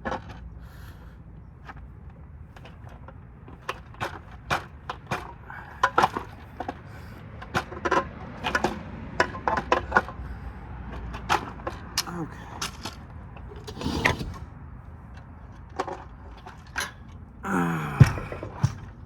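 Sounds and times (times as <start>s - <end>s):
tools knocking on metal chassis: 17.9s - 19.0s.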